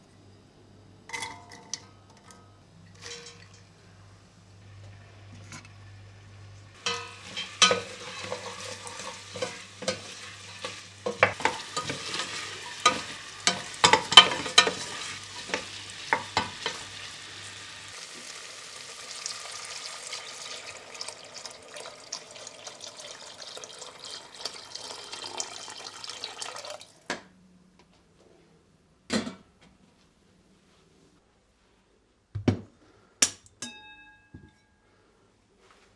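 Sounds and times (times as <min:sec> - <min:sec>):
utensil clinking against pan: 0:06.8 - 0:16.8
food sizzling in pan: 0:06.8 - 0:26.8.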